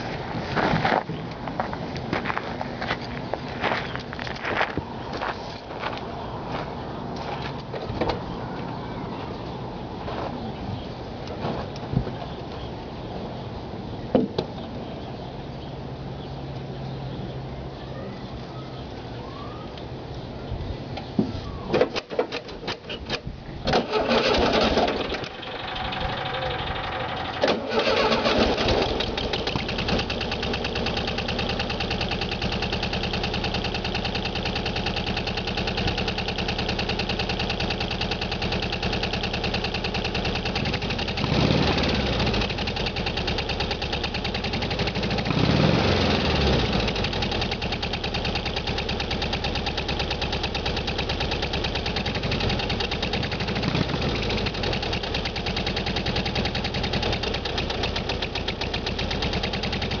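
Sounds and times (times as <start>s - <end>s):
car engine idling and revving: 23.9s - 60.0s.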